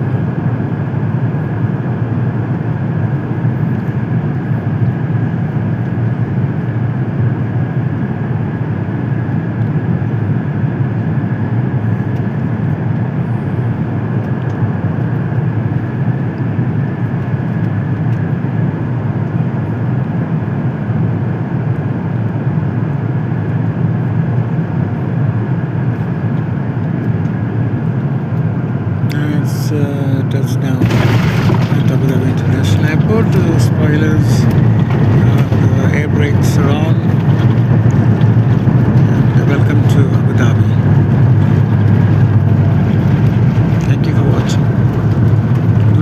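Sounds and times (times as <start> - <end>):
aircraft cabin engine rumble: 0.0 - 46.0.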